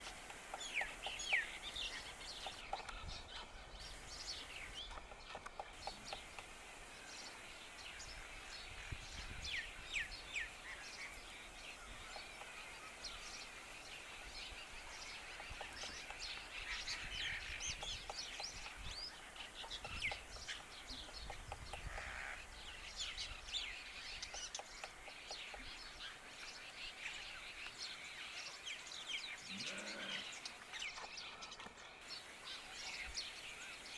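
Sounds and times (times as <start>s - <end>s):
woodpecker tapping on bark: 0.0s - 3.1s, 3.8s - 8.9s, 15.2s - 22.5s, 24.1s - 26.0s
birds chirping and calling: 0.0s - 33.9s.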